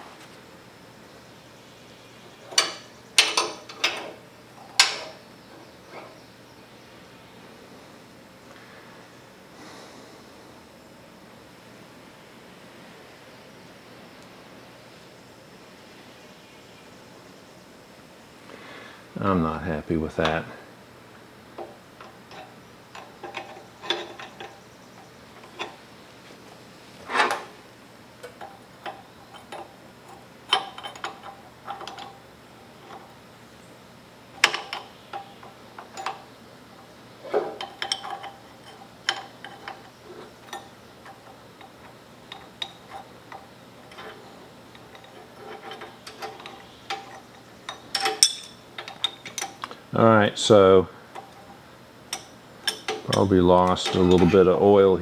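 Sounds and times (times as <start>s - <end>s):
metal tools clicking and clinking: 2.4s - 5.2s, 21.6s - 25.8s, 28.2s - 33.2s, 34.3s - 49.8s, 51.1s - 54.8s
loud metal clanks: 2.5s - 5.2s, 42.3s - 49.6s.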